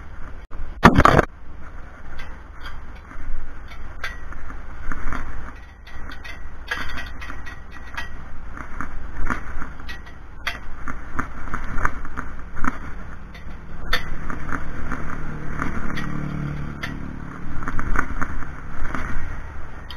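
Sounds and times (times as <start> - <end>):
steady low rumble: 0.0 - 19.9
clinks and knocks of metal tools: 2.2 - 4.5, 5.1 - 8.4, 9.3 - 10.8, 13.2 - 18.1, 19.0 - 19.9.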